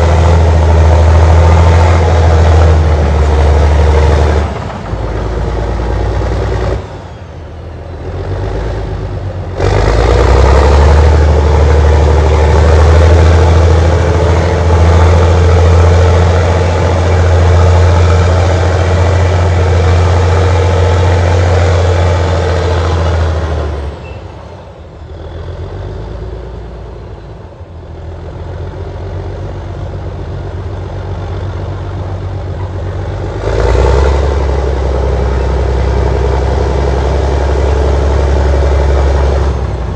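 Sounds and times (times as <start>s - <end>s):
dozer diesel engine under load: 0.0s - 39.9s.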